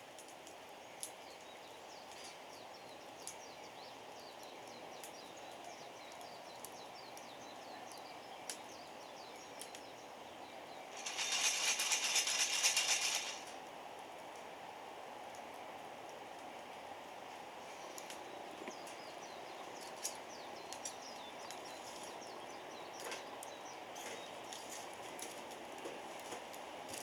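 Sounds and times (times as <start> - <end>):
wood fire crackling: 0.0 - 14.6, 15.2 - 27.0
coffee beans rattling in roaster: 10.9 - 13.6.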